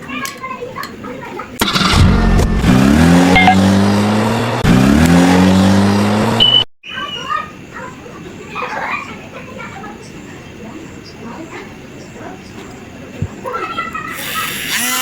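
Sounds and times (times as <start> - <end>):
car engine revving: 1.6 - 6.6.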